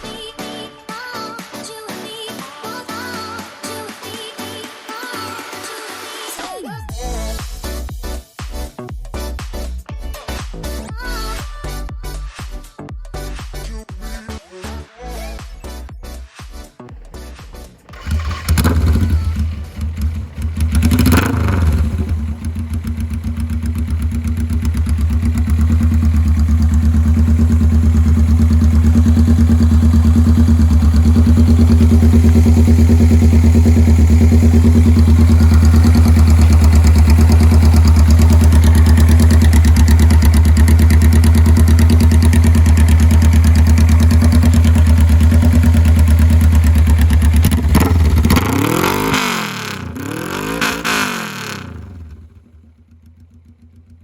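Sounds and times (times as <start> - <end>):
motorcycle engine idling and revving: 17.8 - 54.0.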